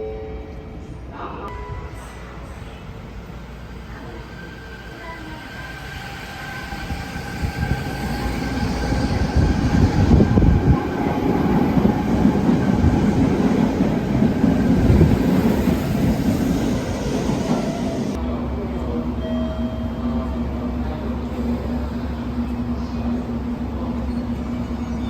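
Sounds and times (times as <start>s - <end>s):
train wheels rumbling: 1.9s - 18.2s.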